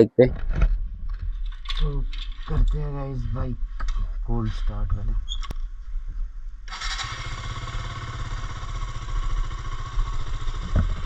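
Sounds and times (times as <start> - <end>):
motorcycle engine idling: 6.7 - 11.0.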